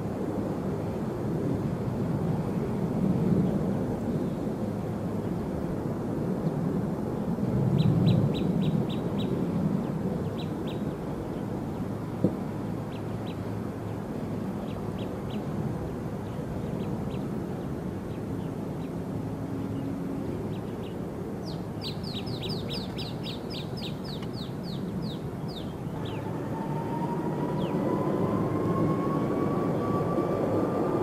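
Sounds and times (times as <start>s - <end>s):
jet engine whine: 0.0s - 31.0s
small bird chirping: 20.5s - 26.2s.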